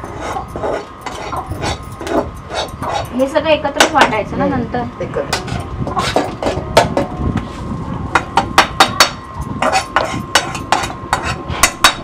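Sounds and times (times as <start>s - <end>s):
metal spatula scraping a pan: 0.0s - 3.3s, 5.3s - 7.0s, 9.6s - 12.0s.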